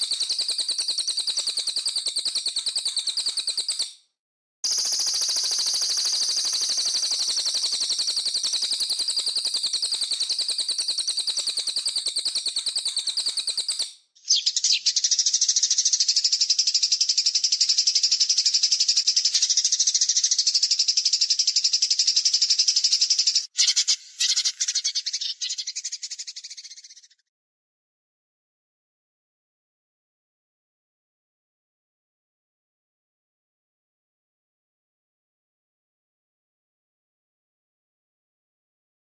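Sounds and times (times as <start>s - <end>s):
high-pitched buzzing bird trill: 0.0s - 3.9s, 4.7s - 14.9s, 23.2s - 25.9s.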